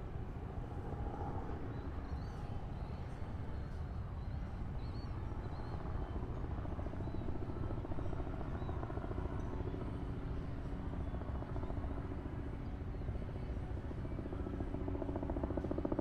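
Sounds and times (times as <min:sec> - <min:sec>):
helicopter rotor beat: 0:04.6 - 0:16.0.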